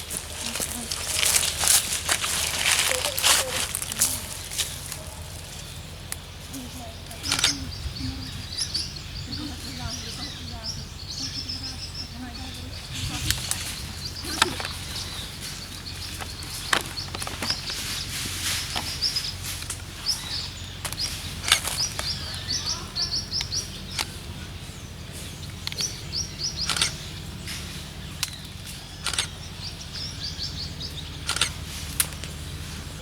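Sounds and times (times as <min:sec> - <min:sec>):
bird chirping: 0:00.0 - 0:33.0
steady low hum: 0:00.0 - 0:33.0
sharp clicks: 0:07.1 - 0:07.7, 0:25.4 - 0:27.1, 0:28.2 - 0:30.1, 0:31.2 - 0:32.4.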